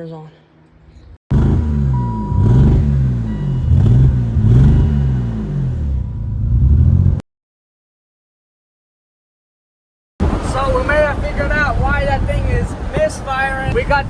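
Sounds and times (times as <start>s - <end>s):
car engine revving: 1.3s - 7.2s.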